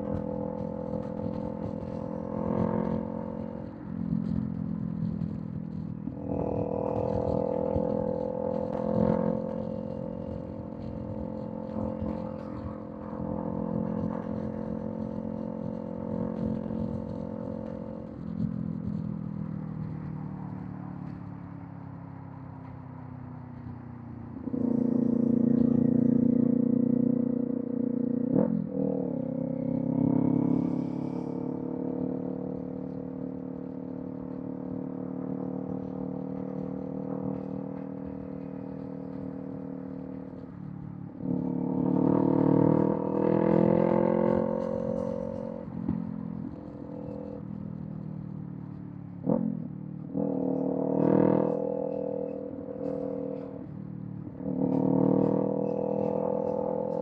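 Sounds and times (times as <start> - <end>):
motorcycle engine running at speed: 0.0 - 57.0.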